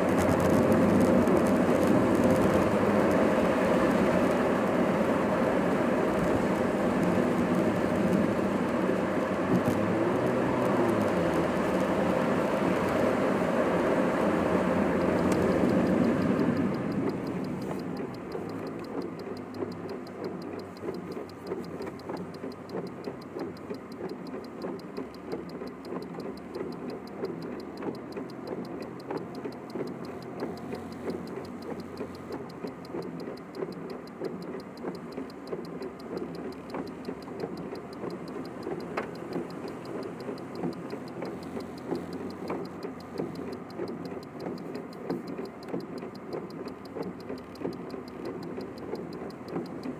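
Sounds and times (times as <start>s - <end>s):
car engine and cabin hum: 0.0s - 49.9s
fast regular ticking: 0.0s - 49.9s.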